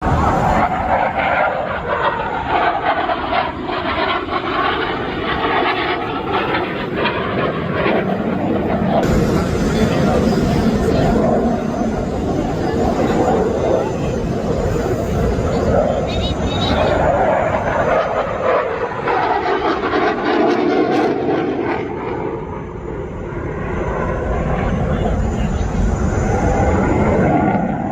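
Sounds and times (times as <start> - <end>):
aircraft engine in flight: 0.0 - 27.9.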